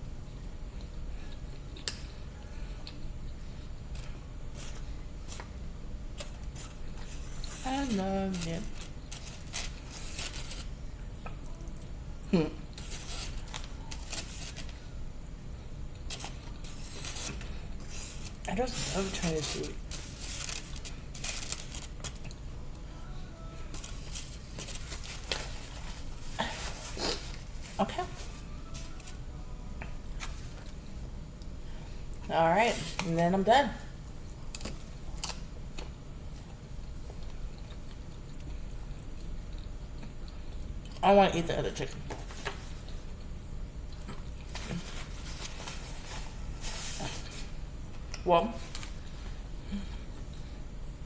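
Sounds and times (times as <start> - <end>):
crisp crunches and clicks: 19.4 - 22.8
chewing food: 34.4 - 41.0, 42.7 - 44.8.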